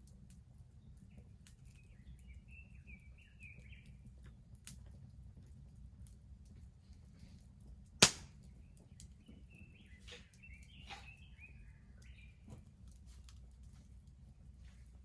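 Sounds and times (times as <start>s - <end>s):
bonfire crackling and popping: 7.4s - 9.8s.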